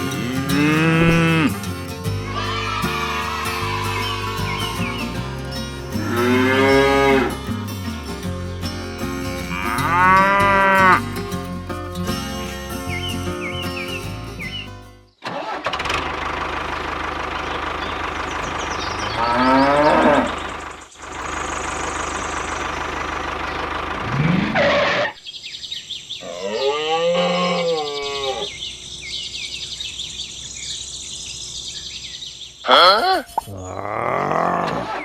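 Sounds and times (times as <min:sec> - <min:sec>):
wavering call: 0:00.0 - 0:07.6
tractor engine revving: 0:00.0 - 0:14.6, 0:15.2 - 0:25.1.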